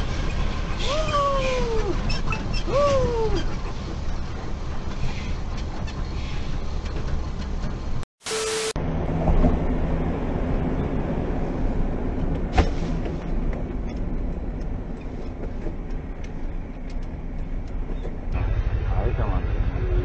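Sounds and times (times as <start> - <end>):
road rumble: 0.0 - 8.1, 8.7 - 20.0
vehicle engine hum: 8.8 - 20.0.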